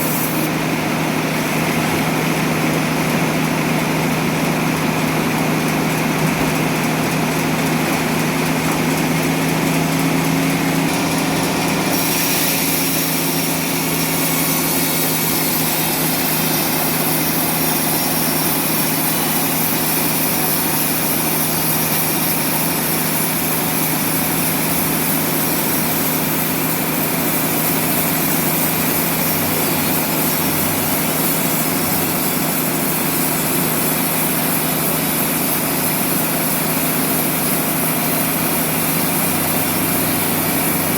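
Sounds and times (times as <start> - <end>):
hiss: 0.0 - 0.6, 10.7 - 40.9
sawmill machinery drone: 0.0 - 40.9.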